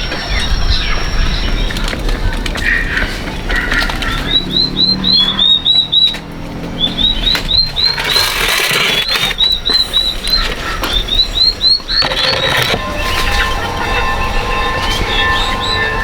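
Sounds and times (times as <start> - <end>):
small bird chirping: 3.5 - 16.0.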